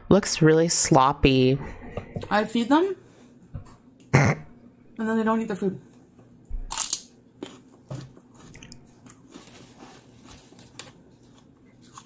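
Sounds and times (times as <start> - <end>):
person crunching celery: 6.7 - 7.7, 10.8 - 12.0.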